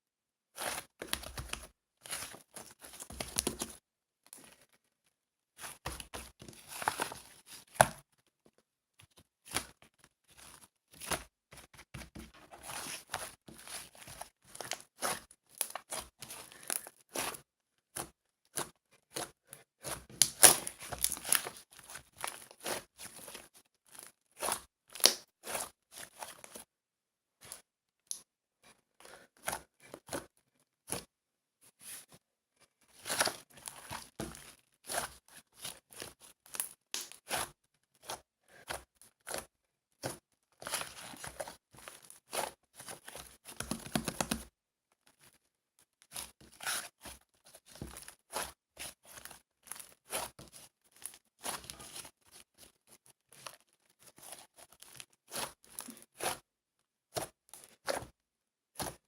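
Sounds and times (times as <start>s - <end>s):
tearing and crinkling: 20.2s - 24.1s.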